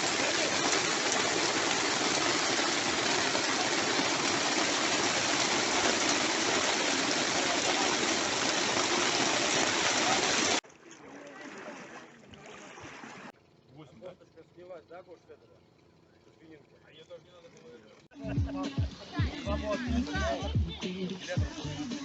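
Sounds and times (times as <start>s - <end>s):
water rushing: 0.0s - 13.3s.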